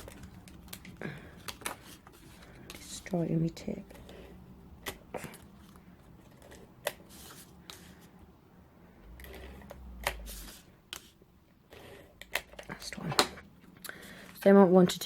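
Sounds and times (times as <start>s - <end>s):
paper rustling: 0.0s - 3.2s, 3.9s - 8.1s.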